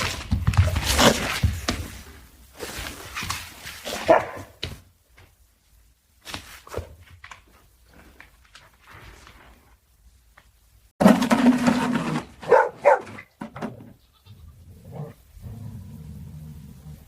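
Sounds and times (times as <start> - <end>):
dog barking: 3.9 - 4.6, 12.4 - 13.2.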